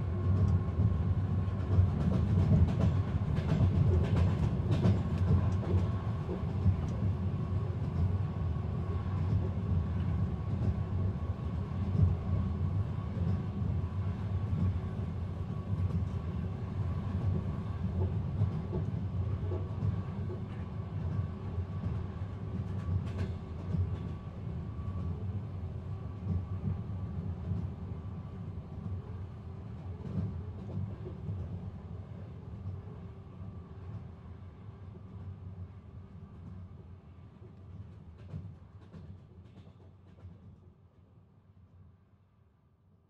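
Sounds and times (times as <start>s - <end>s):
train carriage rumbling on rails: 0.0s - 41.2s.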